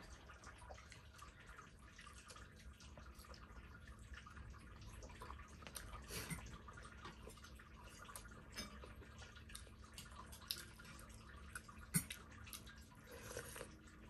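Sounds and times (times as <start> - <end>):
wet chewing and mouth smacks: 5.1 - 13.8.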